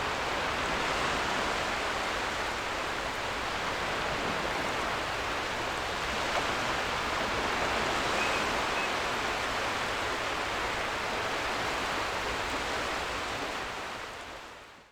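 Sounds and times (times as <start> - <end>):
ocean surf washing onto beach: 0.0 - 14.0
faint seagull calls: 8.0 - 9.5.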